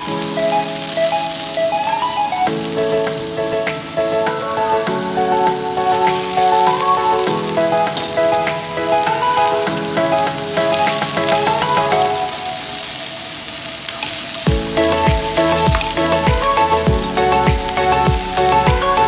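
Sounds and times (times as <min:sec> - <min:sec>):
slow background music: 0:00.0 - 0:13.8, 0:14.4 - 0:19.0
food sizzling in a wok: 0:11.5 - 0:18.6.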